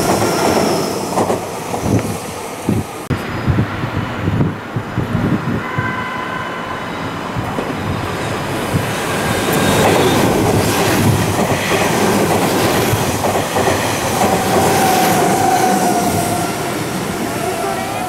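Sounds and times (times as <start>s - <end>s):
train wheels clattering over rail joints: 8.7s - 15.5s.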